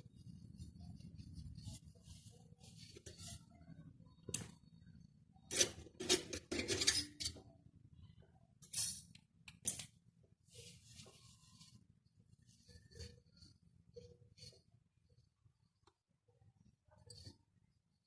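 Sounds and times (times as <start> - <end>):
metal tools clinking and scraping: 5.5 - 7.4.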